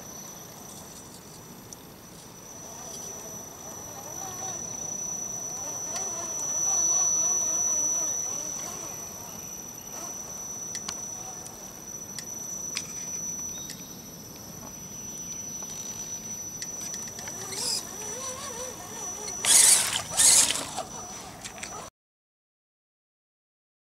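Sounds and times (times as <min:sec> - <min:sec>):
electric motor whining: 0:02.4 - 0:13.4, 0:15.6 - 0:21.9.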